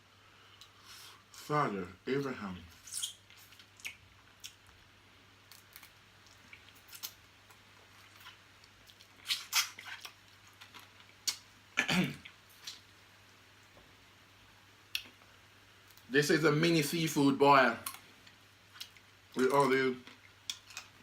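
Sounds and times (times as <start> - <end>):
wet eating sound: 2.6 - 4.8, 5.4 - 11.5, 17.8 - 21.0
crab shells crunching: 18.8 - 21.0.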